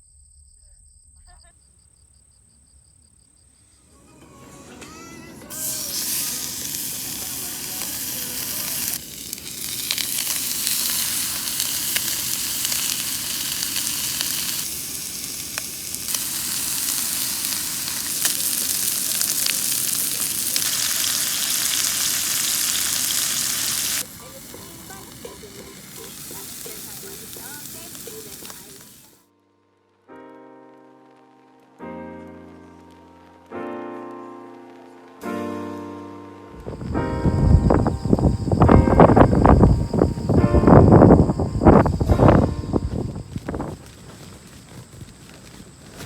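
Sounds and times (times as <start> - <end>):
meat sizzling in a hot pan: 5.5 - 29.2, 36.7 - 43.7.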